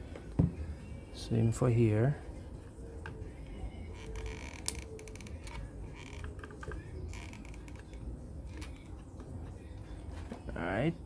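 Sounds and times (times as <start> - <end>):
glue gun clicks and creaks: 4.0 - 8.9.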